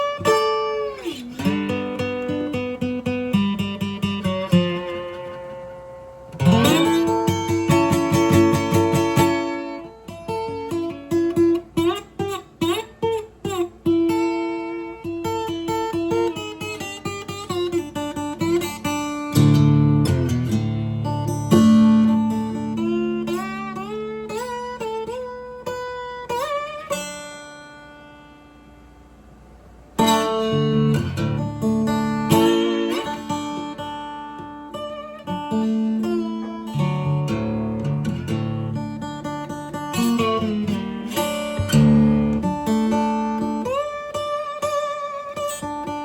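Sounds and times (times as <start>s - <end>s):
guitar notes sliding up: 0.0s - 13.7s
acoustic guitar playing: 0.0s - 46.0s.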